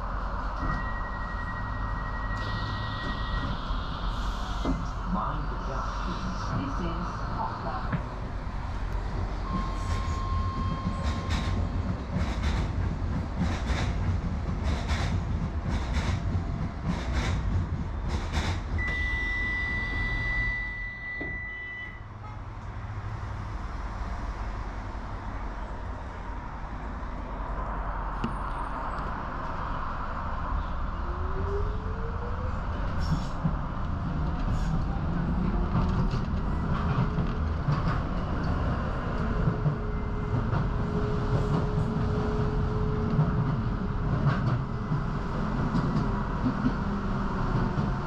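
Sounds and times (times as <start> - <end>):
train rumbling on track: 0.0 - 48.0
faint rising whine: 0.1 - 9.0
short high squeal: 0.8 - 4.9.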